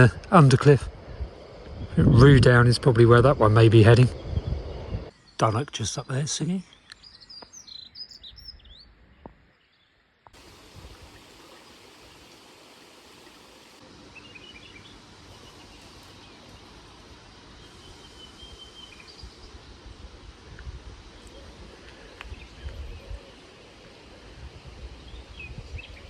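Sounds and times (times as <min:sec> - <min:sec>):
steady outdoor hiss: 0:00.0 - 0:26.0
bird singing high warble: 0:02.2 - 0:20.0, 0:21.0 - 0:26.0.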